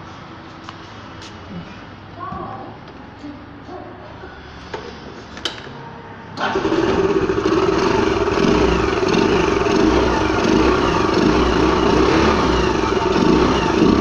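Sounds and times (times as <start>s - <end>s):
scooter engine idling: 6.4s - 14.0s.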